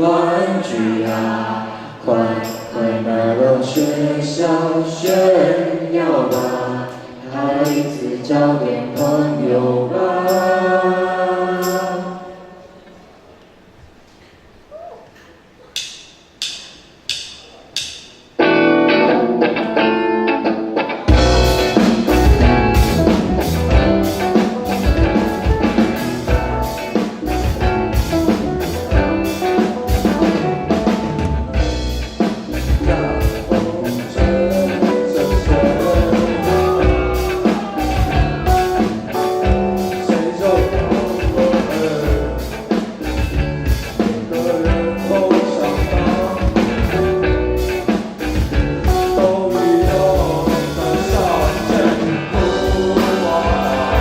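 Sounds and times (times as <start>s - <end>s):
person singing: 0.0s - 12.8s, 18.5s - 54.0s
live rock band playing: 17.8s - 54.0s.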